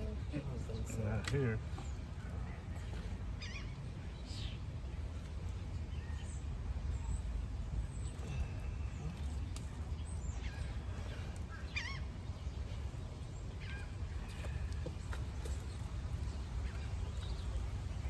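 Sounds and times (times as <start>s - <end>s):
bird calls with pitch glides: 8.7s - 12.8s.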